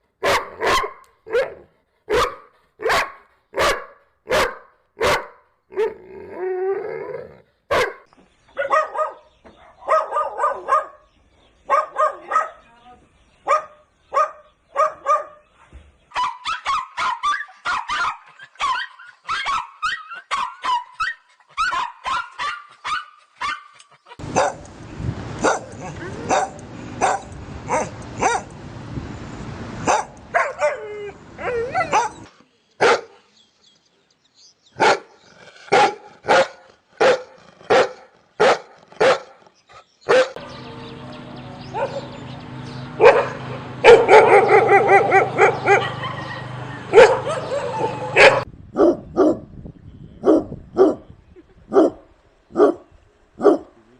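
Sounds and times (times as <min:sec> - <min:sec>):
dogs barking: 0:00.2 - 0:06.0, 0:07.7 - 0:12.6, 0:13.4 - 0:15.4, 0:16.1 - 0:24.7, 0:25.4 - 0:28.6, 0:29.8 - 0:33.2, 0:34.8 - 0:39.4, 0:40.1 - 0:40.6, 0:41.6 - 0:42.3, 0:42.9 - 0:49.5, 0:50.2 - 0:51.0, 0:51.7 - 0:53.8.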